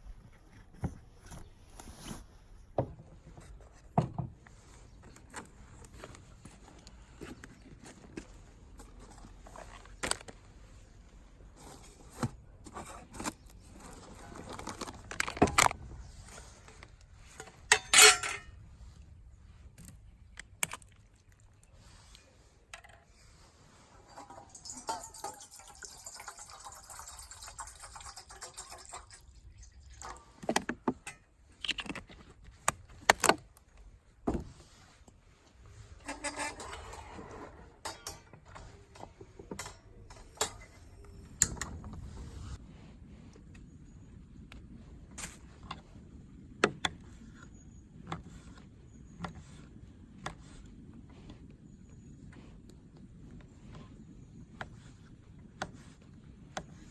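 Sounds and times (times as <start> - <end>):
objects handled clicking and knocking: 2.8 - 18.6, 19.6 - 21.7, 30.0 - 35.2, 35.9 - 42.1
soft hissing rustle: 21.7 - 30.5, 38.6 - 46.1.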